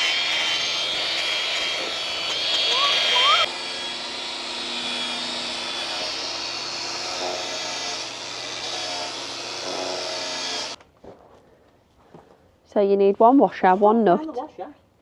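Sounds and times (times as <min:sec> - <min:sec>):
power tool running: 0:00.0 - 0:10.8.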